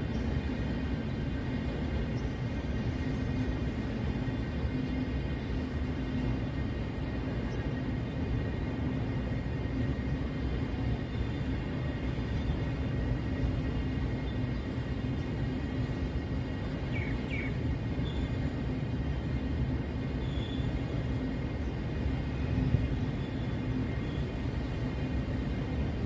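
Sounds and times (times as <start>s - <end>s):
freight train rumbling past: 0.0s - 26.0s.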